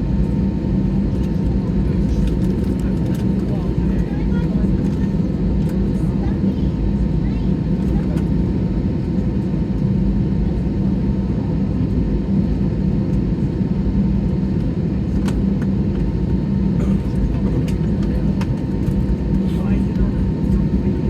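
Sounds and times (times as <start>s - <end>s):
jet engines idling: 0.0s - 21.0s.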